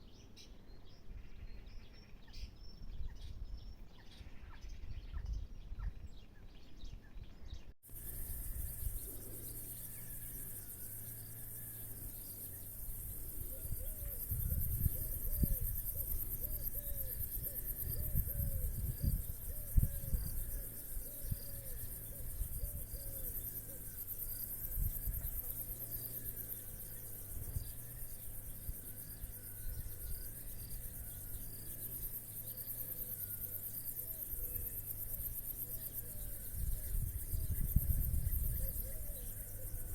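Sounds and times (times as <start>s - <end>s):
crickets chirring: 7.9s - 39.9s.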